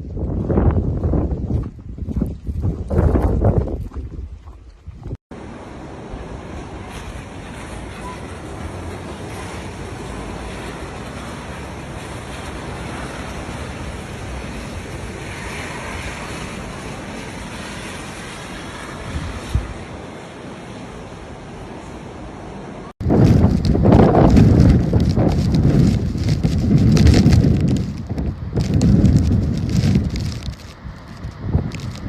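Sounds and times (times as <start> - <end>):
wind buffeting microphone: 0.0 - 5.2, 6.1 - 20.1, 23.0 - 32.0
wind blowing hard: 0.0 - 32.0
scattered crackles: 23.0 - 32.0.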